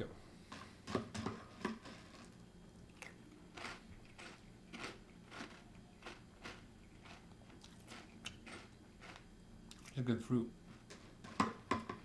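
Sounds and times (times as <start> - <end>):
person chewing crunchy cereal: 1.8 - 10.0.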